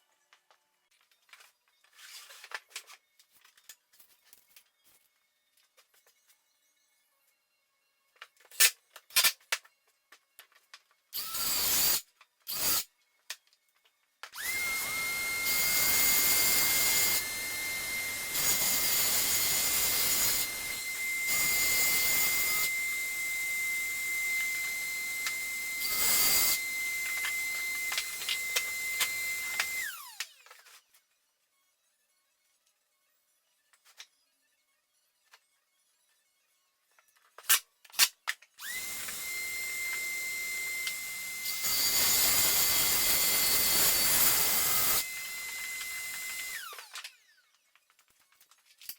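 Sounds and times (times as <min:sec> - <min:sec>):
circular saw cutting wood: 0:11.2 - 0:12.9, 0:14.4 - 0:31.0, 0:38.6 - 0:47.6.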